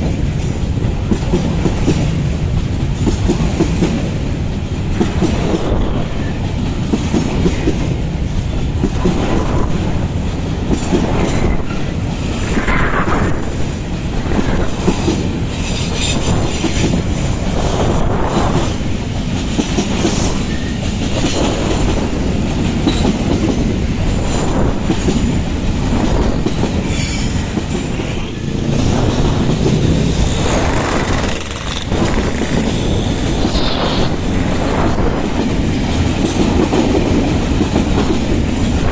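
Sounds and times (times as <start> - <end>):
train wagons rumbling: 0.0 - 38.9
wheels squealing against rail: 26.8 - 28.5, 31.1 - 34.2.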